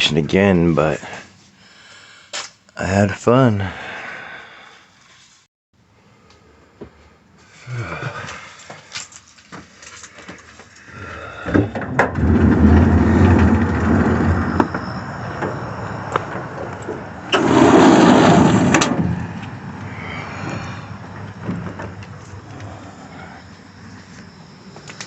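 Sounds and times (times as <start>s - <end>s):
vehicle engine starting and rumbling: 11.5s - 24.7s
rush of noise: 12.2s - 25.0s.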